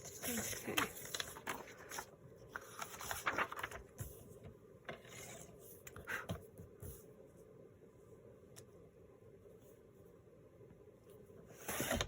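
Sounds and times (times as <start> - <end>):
paper pages rubbing and scraping: 0.0 - 4.1.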